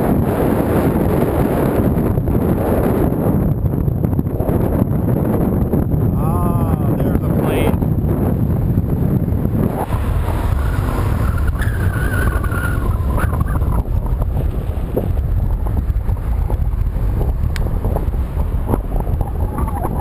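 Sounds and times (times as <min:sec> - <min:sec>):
road traffic: 0:00.0 - 0:20.0
wind buffeting microphone: 0:00.0 - 0:20.0.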